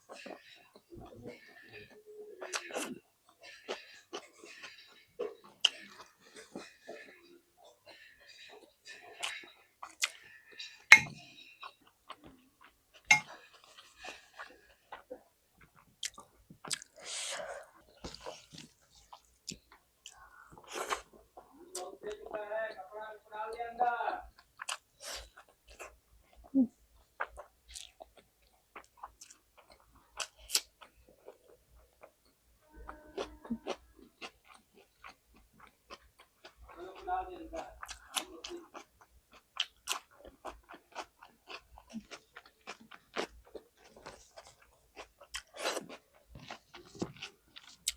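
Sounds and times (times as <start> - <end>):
person chewing with wet smacks: 0.0 - 22.4, 24.2 - 47.9
dishes and utensils clinking: 10.6 - 11.7, 13.1 - 13.3.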